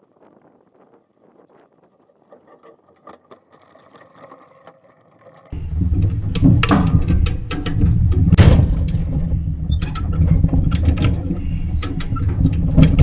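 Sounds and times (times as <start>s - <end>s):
metal clank: 5.4s - 13.0s
low rumble: 5.5s - 13.0s.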